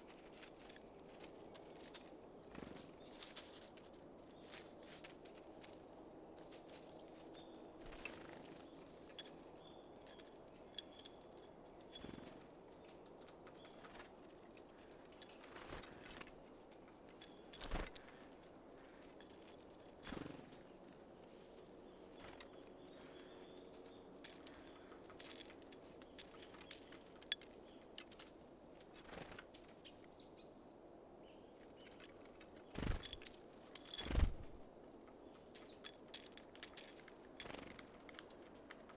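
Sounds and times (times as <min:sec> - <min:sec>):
birds pecking at seed: 0:00.0 - 0:30.2, 0:31.4 - 0:38.9
bird wingbeats: 0:17.1 - 0:18.4, 0:31.8 - 0:34.7.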